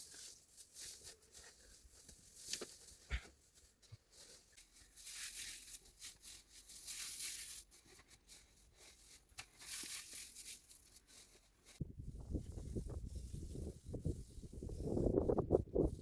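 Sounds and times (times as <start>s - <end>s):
material rustling and crackling: 0.0s - 14.9s.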